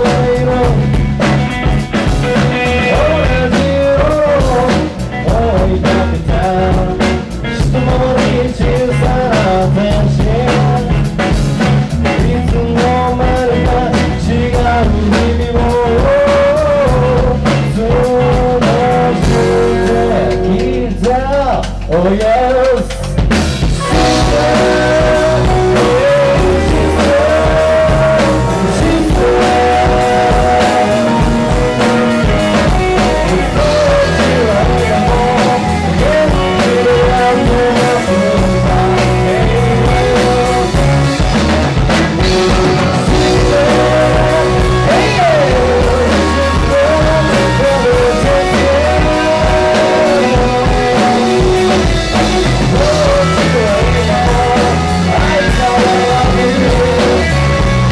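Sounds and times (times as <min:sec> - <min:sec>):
rock band playing: 0:00.0 - 0:57.9
wavering melody line: 0:19.3 - 0:21.5, 0:23.7 - 0:57.8.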